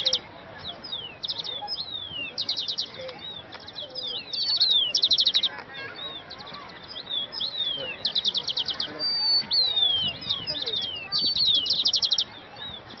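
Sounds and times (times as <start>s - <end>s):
small songbirds singing: 0.0s - 13.0s.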